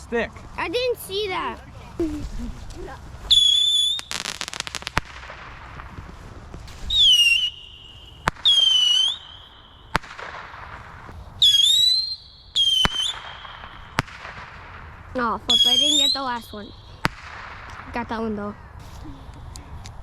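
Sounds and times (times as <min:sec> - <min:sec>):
firework crackles: 0:00.0 - 0:20.0
whistling rockets: 0:03.3 - 0:18.1
sharp firework bangs: 0:03.3 - 0:19.1.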